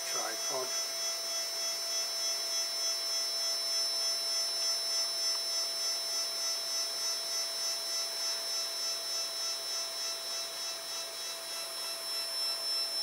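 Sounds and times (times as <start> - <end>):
stepper motors whining: 0.0 - 7.4.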